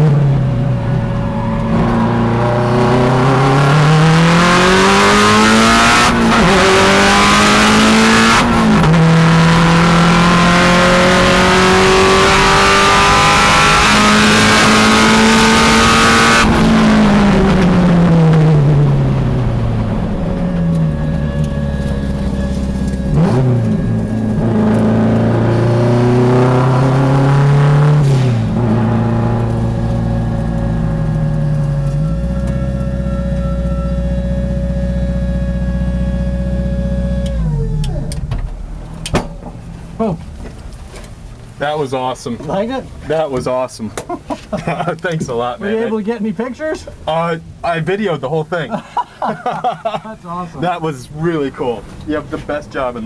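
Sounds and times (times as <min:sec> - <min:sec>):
race car engine accelerating: 0:00.0 - 0:40.5.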